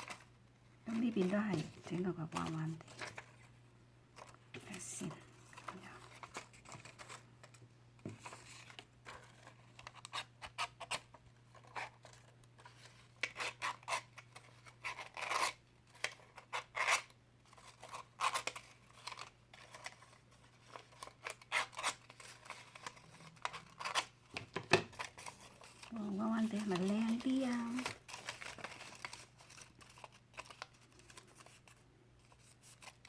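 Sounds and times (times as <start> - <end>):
scissor blade scraping paper: 13.2 - 20.0, 20.7 - 24.1.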